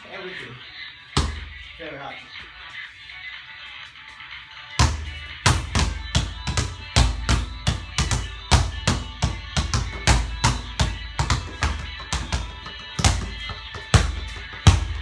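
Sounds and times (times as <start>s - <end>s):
background music: 0.0s - 15.0s
basketball bouncing on court: 1.2s - 1.7s, 4.8s - 15.0s.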